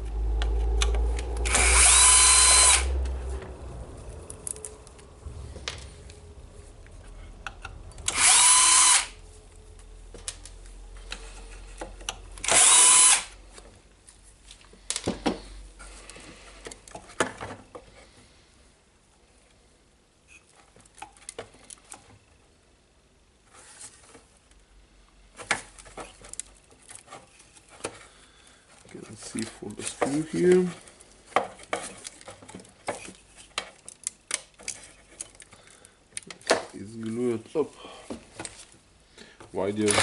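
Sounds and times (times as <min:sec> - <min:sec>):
electric screwdriver whining: 0:00.8 - 0:03.0, 0:08.1 - 0:09.2, 0:12.4 - 0:13.4
screws and parts clicking: 0:00.8 - 0:03.0, 0:12.1 - 0:13.3.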